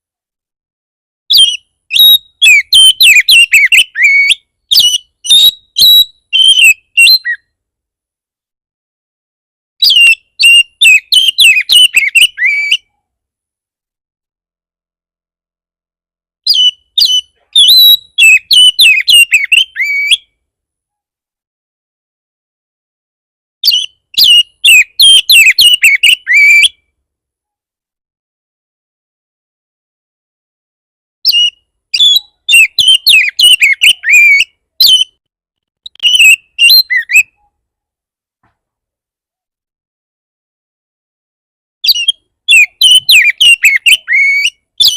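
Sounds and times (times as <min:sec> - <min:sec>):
bird singing whistled notes: 0:01.3 - 0:07.5, 0:09.8 - 0:13.0, 0:16.4 - 0:20.4, 0:23.6 - 0:26.8, 0:31.2 - 0:35.2, 0:35.9 - 0:37.4, 0:41.8 - 0:44.9.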